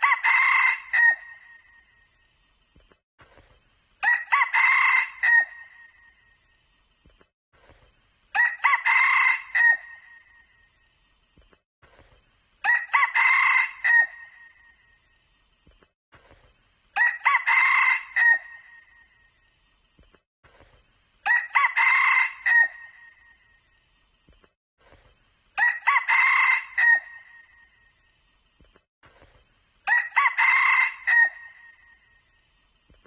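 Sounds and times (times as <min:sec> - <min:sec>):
rooster crowing: 0:00.0 - 0:01.4, 0:04.0 - 0:05.7, 0:08.4 - 0:10.0, 0:12.6 - 0:14.4, 0:17.0 - 0:18.7, 0:21.3 - 0:23.1, 0:25.6 - 0:27.5, 0:29.9 - 0:31.8.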